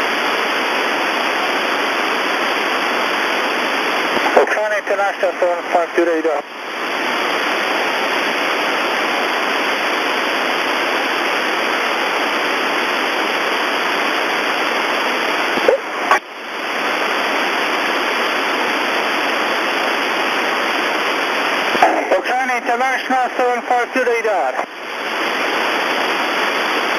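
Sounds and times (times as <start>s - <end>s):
radio static hiss: 0.0s - 26.9s
radio click: 4.1s - 4.7s, 15.5s - 16.2s, 21.7s - 22.4s.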